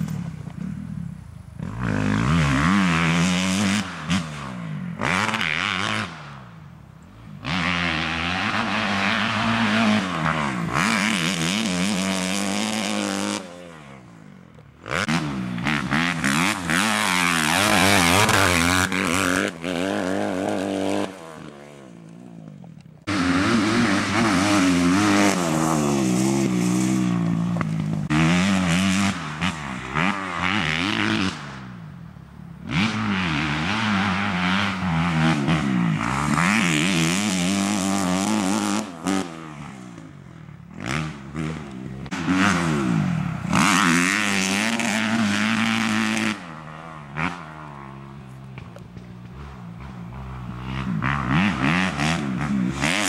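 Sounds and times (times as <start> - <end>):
motocross engine revving hard: 1.6 - 6.4, 7.4 - 14.1, 14.8 - 22.0, 23.1 - 31.8, 32.6 - 48.2, 49.2 - 53.0.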